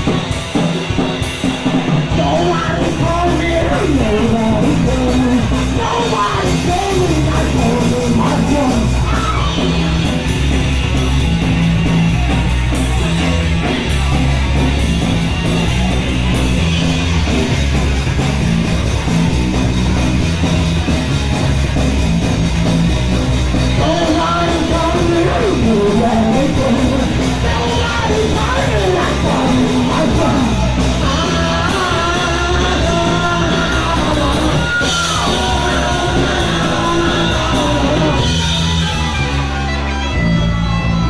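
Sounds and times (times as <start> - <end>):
gliding melodic guitar line: 0.0 - 41.0
punk rock band playing live: 0.0 - 41.0.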